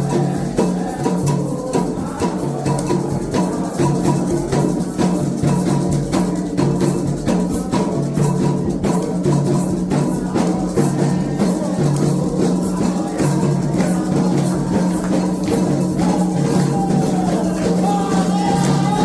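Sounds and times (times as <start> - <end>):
hand drums playing rhythm: 0.0 - 19.0
shaker: 0.0 - 19.0.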